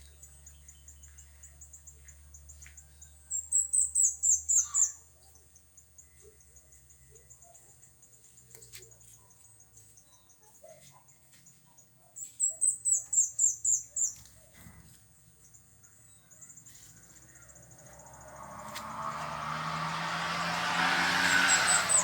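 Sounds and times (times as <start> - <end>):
vehicle noise: 16.5 - 22.0.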